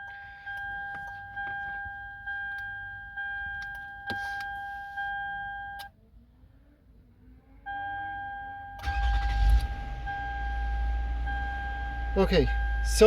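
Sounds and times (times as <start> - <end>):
dashboard warning chime: 0.0 - 5.9, 9.9 - 13.0.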